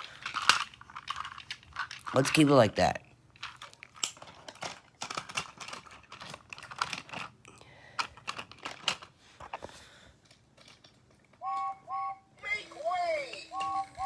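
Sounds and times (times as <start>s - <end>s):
plastic toy train pieces clicking: 0.0s - 2.6s, 3.4s - 7.4s, 8.0s - 9.1s, 10.2s - 11.0s.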